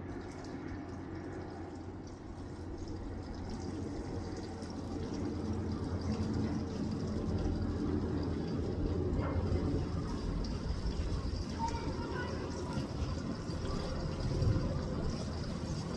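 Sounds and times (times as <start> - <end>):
running water splashing: 0.0 - 15.9.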